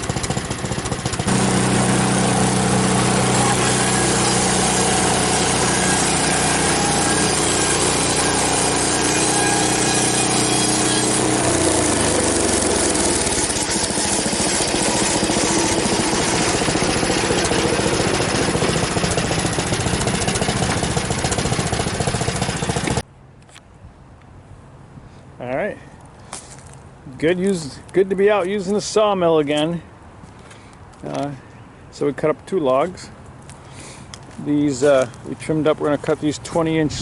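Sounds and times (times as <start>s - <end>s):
band saw blade sawing log: 0.0s - 23.0s
gasoline engine running loudly: 0.0s - 23.0s.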